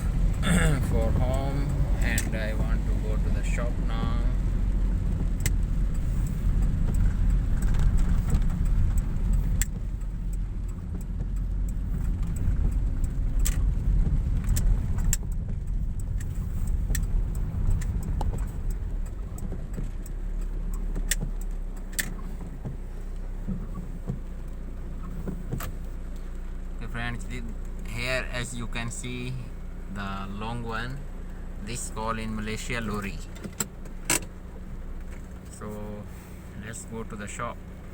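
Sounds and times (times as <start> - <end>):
car engine and tyre rumble: 0.0 - 37.9
sharp ticks: 5.1 - 26.3.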